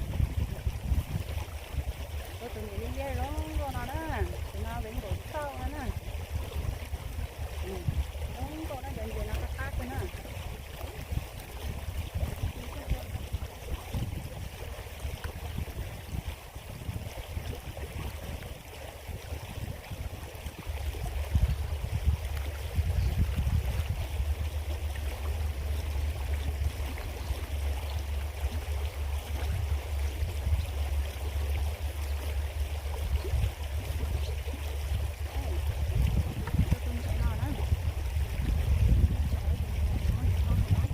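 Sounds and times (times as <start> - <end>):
creek water rushing: 0.0 - 40.9
deep low rumble: 0.0 - 40.9.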